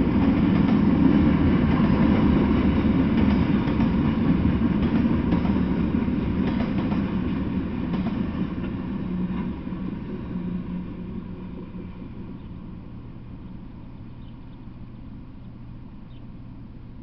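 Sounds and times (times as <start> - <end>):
freight train rolling on rails: 0.0 - 17.0
steady low hum: 0.0 - 17.0.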